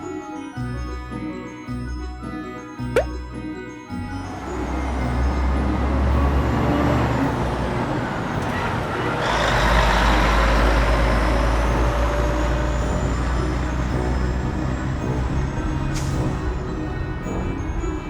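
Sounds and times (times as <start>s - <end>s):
truck engine rumbling: 4.5s - 18.0s.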